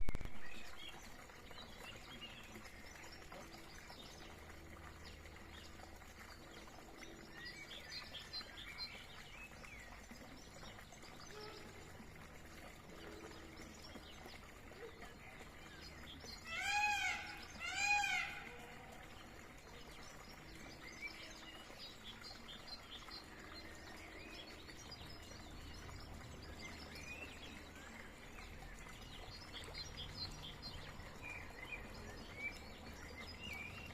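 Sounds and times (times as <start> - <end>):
loud rising and falling calls: 16.5 - 18.5.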